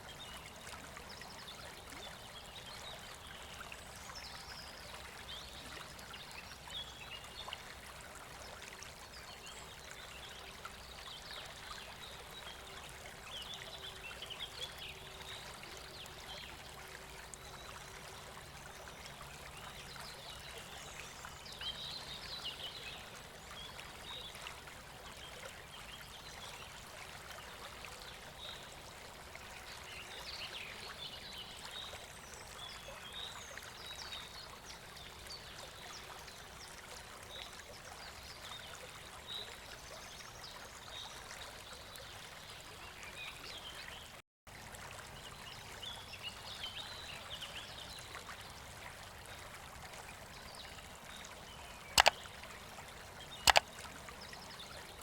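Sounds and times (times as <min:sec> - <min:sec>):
stream running water: 0:00.0 - 0:55.0
small high-pitched sounds: 0:52.0 - 0:52.2.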